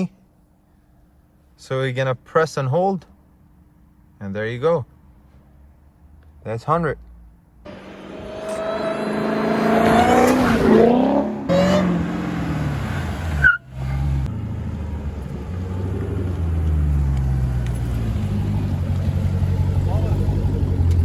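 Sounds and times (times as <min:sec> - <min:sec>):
car engine accelerating: 0:07.7 - 0:21.0.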